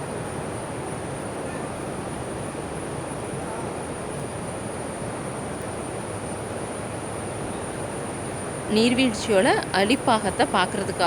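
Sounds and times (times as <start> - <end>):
insects droning: 0.3 - 11.0.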